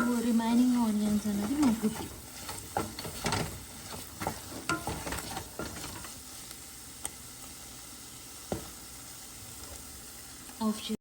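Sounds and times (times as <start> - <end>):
spatula scraping frying pan: 0.0 - 6.5
oil sizzling: 0.0 - 11.0.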